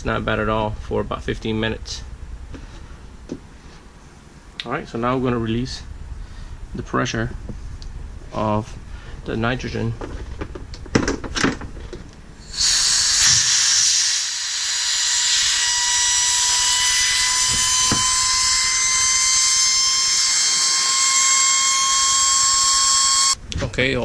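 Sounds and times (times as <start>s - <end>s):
loud hiss of gas venting: 12.4s - 20.2s
thin whistle: 12.4s - 23.4s
sharp knocks: 17.5s - 18.2s.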